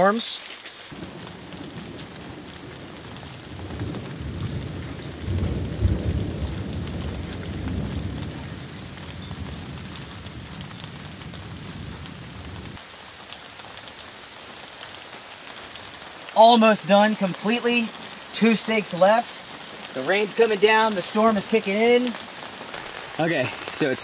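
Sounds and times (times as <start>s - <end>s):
steady rain falling: 0.0s - 24.0s
low rumble of thunder: 0.9s - 12.8s.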